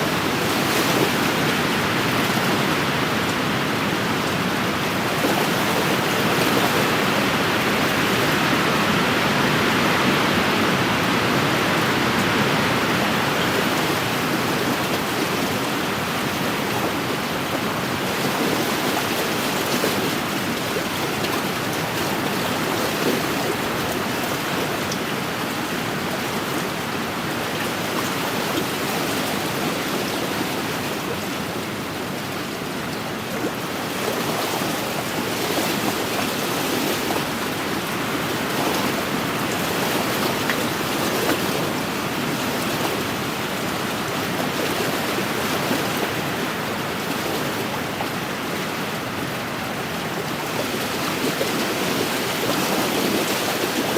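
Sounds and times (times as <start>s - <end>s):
waves washing on lakeshore: 0.0s - 53.9s.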